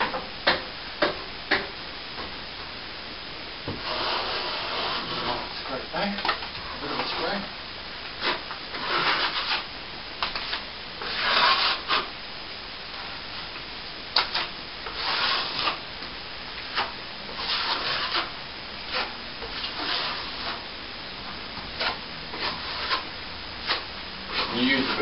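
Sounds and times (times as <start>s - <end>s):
steel trowel scraping plaster: 8.2s - 9.7s, 10.4s - 12.1s, 14.2s - 15.8s, 16.7s - 20.6s, 21.8s - 25.0s.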